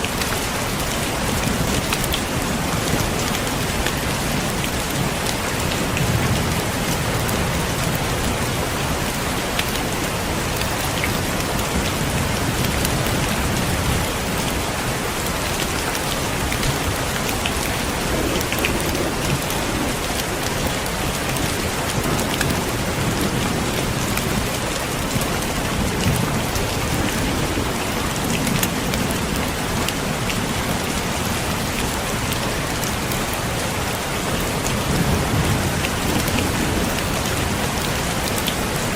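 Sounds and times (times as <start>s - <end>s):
heavy rain pouring: 0.0s - 38.9s
thunder rumbling: 15.7s - 31.4s.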